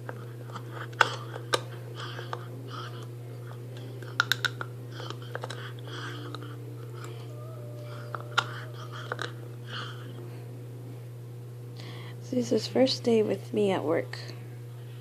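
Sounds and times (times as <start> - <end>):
teeth clicking on bone: 0.0 - 7.2, 7.9 - 9.4
puppy gnawing on a bone: 0.0 - 10.0
electrical hum: 0.0 - 15.0.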